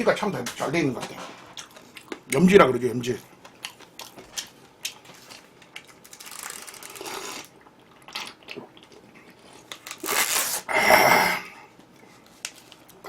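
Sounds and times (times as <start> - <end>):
crunchy chewing of fried chicken: 3.2 - 10.7.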